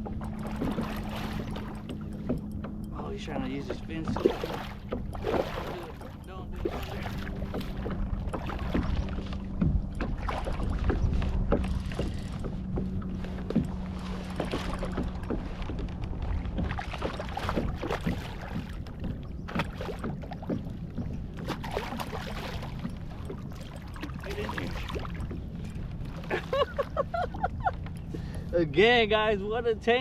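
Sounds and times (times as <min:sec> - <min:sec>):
knocks and rustles on a kayak: 0:00.0 - 0:28.6
water splashing: 0:00.0 - 0:29.6
low steady hum: 0:00.0 - 0:30.0.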